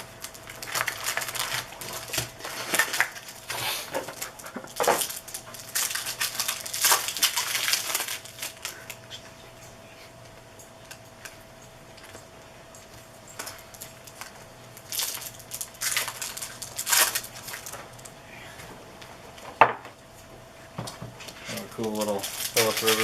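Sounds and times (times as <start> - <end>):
card wrappers crinkling: 0.0 - 9.7, 12.9 - 18.2, 21.3 - 23.0
faint steady hum: 0.0 - 23.0.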